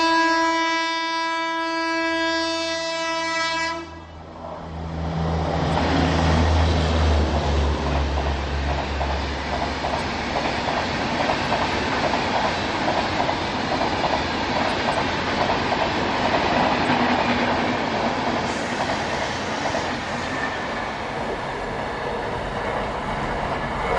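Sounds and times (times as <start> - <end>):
train coaches rumbling: 1.6 - 23.9
wheels clacking over rail joints: 5.6 - 23.9.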